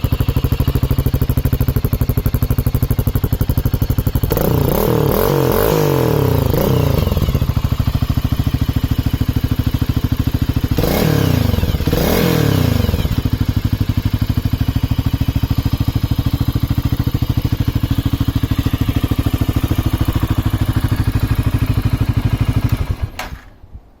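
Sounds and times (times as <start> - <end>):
motorcycle engine idling and revving: 0.0 - 23.5.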